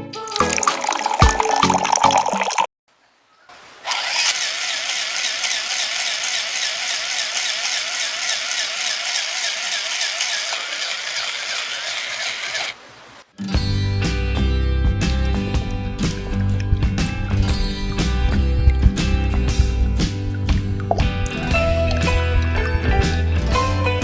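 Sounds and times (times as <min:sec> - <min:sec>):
small motor running with rattle: 0:03.8 - 0:12.8.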